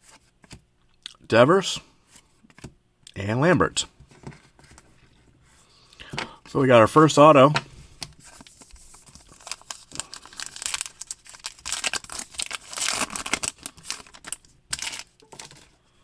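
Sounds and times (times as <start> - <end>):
packaging crinkling and rustling: 8.1 - 15.8.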